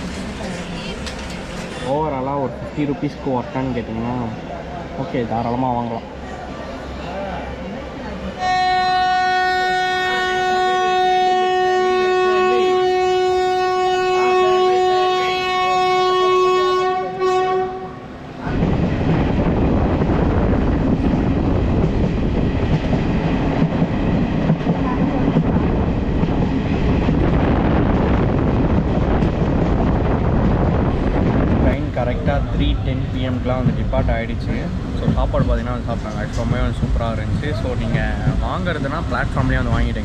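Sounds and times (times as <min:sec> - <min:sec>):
train rumble and rail clatter: 0:00.0 - 0:40.0
locomotive horn blast: 0:08.3 - 0:18.2.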